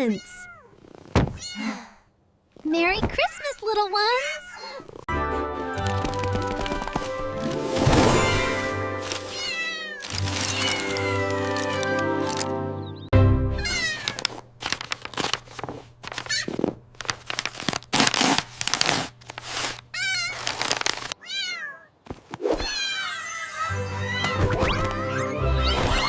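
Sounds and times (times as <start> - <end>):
cats meowing: 0.0 - 0.8, 3.1 - 5.0, 9.2 - 12.4, 13.6 - 14.3, 19.9 - 21.9, 22.5 - 26.0
background music: 5.1 - 13.8, 23.6 - 26.0.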